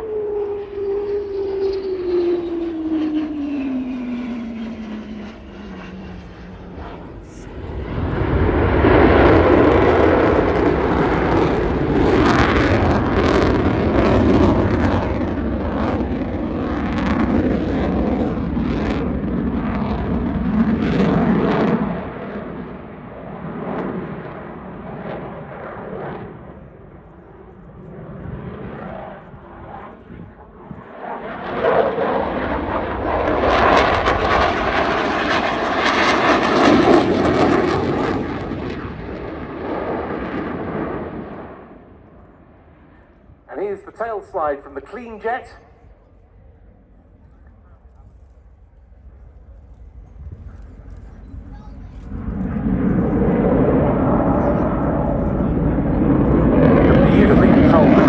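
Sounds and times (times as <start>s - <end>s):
crackling jet rumble: 0.0s - 58.0s
fighter jet flying past: 0.0s - 58.0s.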